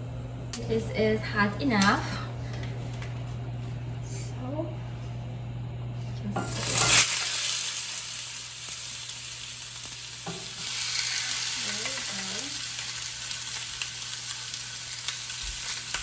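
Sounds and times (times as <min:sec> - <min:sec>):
steaks sizzling on a grill pan: 0:06.4 - 0:16.0.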